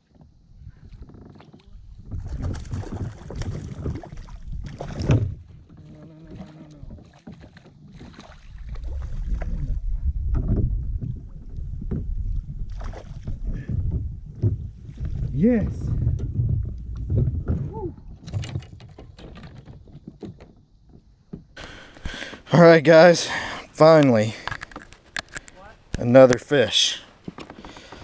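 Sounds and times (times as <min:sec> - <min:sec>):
wind rumble on microphone: 0:00.3 - 0:20.0.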